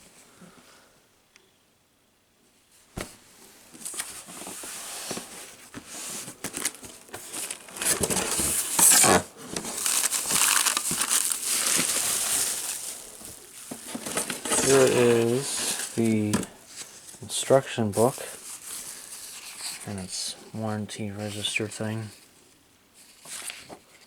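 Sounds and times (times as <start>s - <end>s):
packaging crinkling and rustling: 3.0s - 19.9s.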